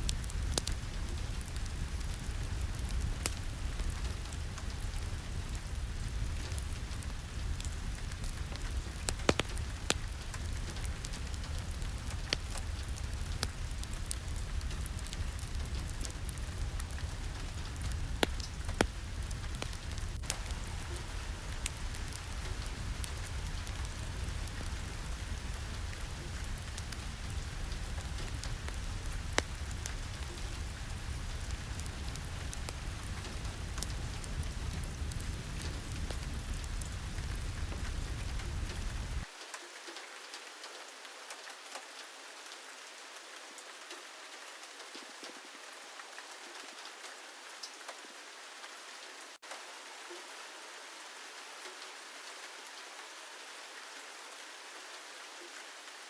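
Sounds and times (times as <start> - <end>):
wood fire popping: 0.0 - 39.3
steady rain: 0.0 - 56.0.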